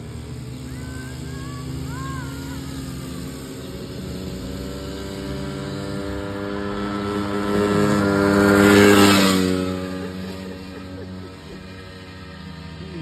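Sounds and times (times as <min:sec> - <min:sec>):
dirt bike engines running: 0:00.0 - 0:13.0.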